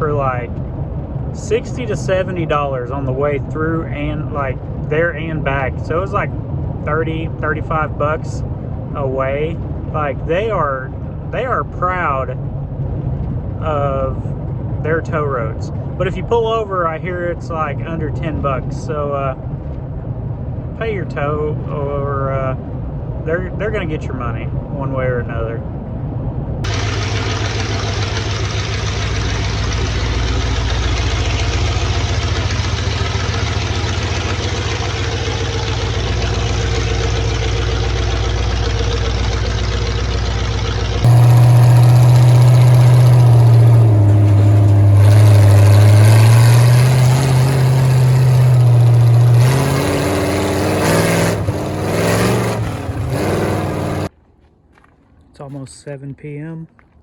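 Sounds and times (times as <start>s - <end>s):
vehicle engine running: 0.0s - 54.9s
engine revving: 26.6s - 54.1s.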